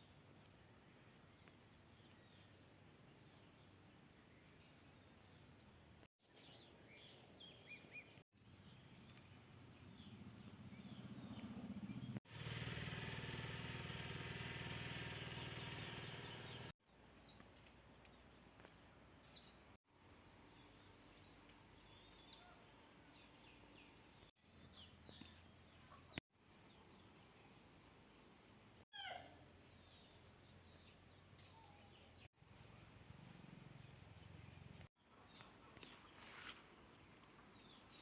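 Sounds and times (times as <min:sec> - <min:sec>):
songbirds chirping: 0:00.0 - 0:12.2, 0:13.9 - 0:38.0.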